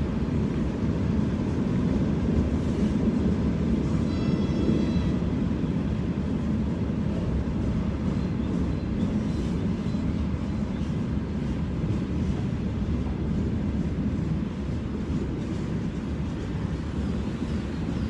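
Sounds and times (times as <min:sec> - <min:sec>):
freight train rumbling over bridge: 0:00.0 - 0:18.0.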